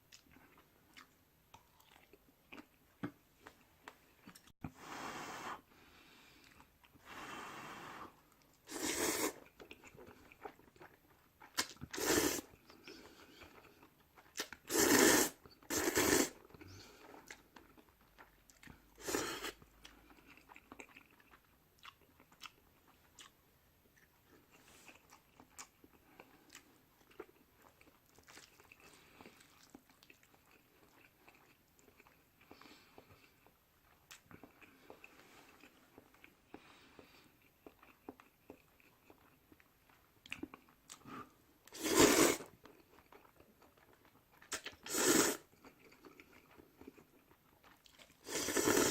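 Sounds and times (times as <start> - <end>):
soft chewing: 0.0 - 4.7, 5.9 - 7.0, 8.1 - 14.7, 16.3 - 48.9
slurping noodles: 7.0 - 9.5, 11.9 - 12.5, 14.7 - 16.4, 19.0 - 19.6, 41.8 - 42.5, 44.8 - 45.5, 48.2 - 48.9.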